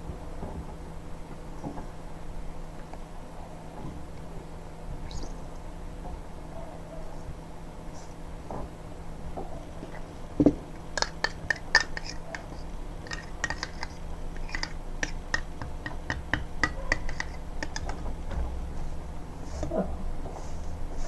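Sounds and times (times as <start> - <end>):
utensil clicking and scraping container: 11.0 - 18.0.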